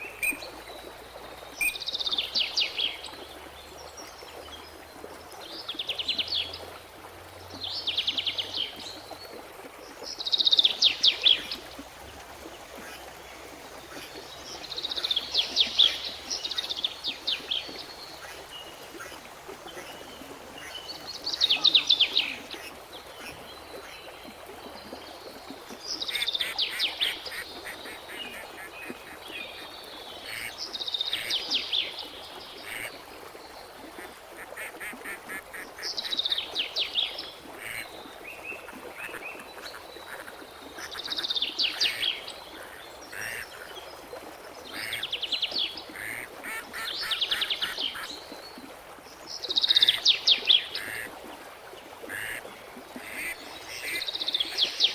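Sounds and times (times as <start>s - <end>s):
steady background hiss: 10.5s - 22.6s.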